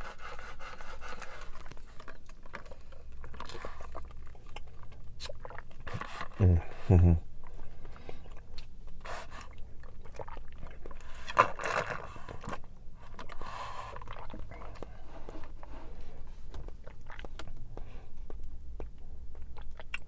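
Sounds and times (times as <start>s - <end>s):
chewing tapioca pearls: 0.1s - 20.0s
sucking through a straw: 8.4s - 16.0s.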